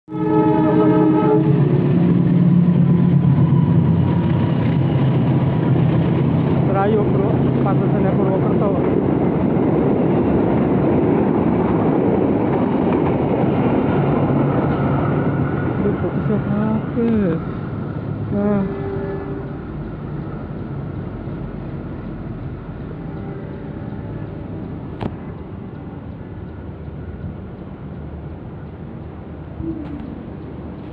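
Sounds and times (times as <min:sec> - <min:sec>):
diesel locomotive engine drone: 0:00.1 - 0:30.9
train rumbling: 0:00.1 - 0:30.9.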